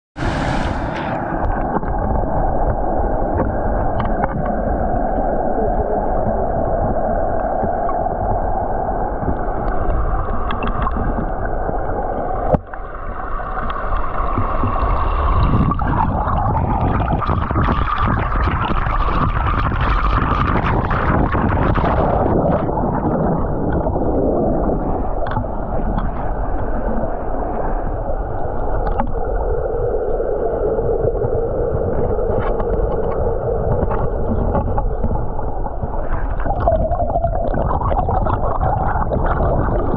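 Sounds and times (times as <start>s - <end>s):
waterfall rushing: 0.2s - 1.7s.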